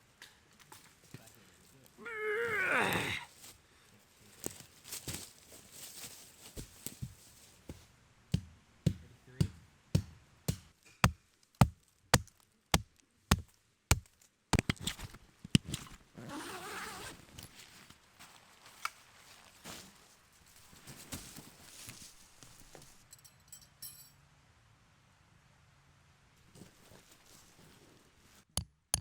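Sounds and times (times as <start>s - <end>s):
rustling: 4.2s - 7.9s, 13.3s - 23.0s, 26.4s - 28.4s.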